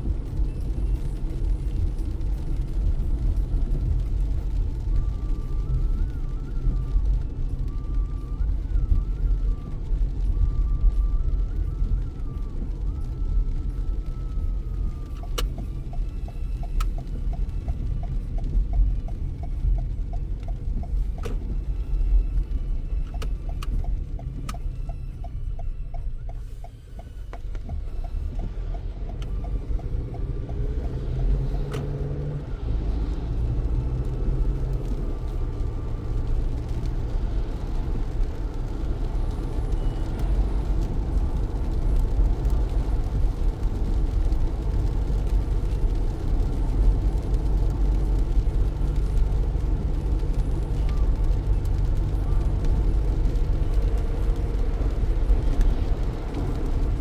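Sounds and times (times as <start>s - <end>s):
heavy rain: 0.0s - 24.8s, 27.4s - 57.0s
road and engine rumble: 0.0s - 57.0s
light ticking: 13.0s - 57.0s.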